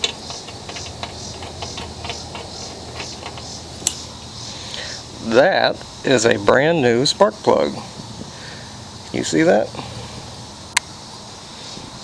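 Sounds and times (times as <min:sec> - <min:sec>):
socket ratchet clicking: 0:00.0 - 0:04.2.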